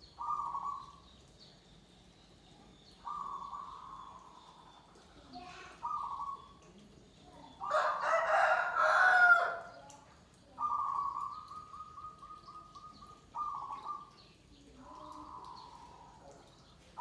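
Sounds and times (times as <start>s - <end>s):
rooster crowing: 7.7s - 9.6s
doves cooing in trills: 10.6s - 14.1s.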